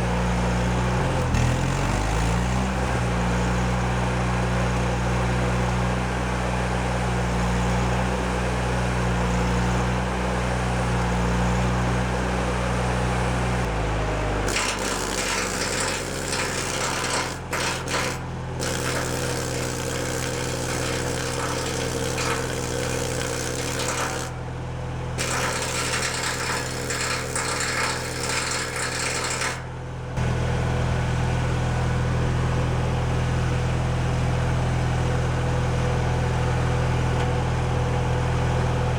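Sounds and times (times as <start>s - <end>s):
welder engine running: 0.0s - 38.9s
welding arc crackling: 14.5s - 24.4s, 25.2s - 29.7s.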